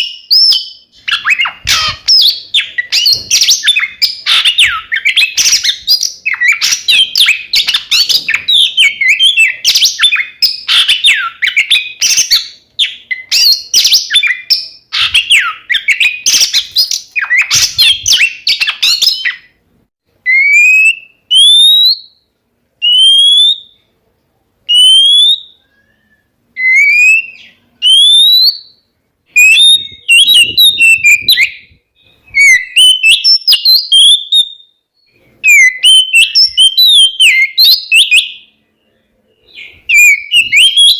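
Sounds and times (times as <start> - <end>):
bird singing whistles and clicks: 0.0 - 19.5, 39.6 - 40.9.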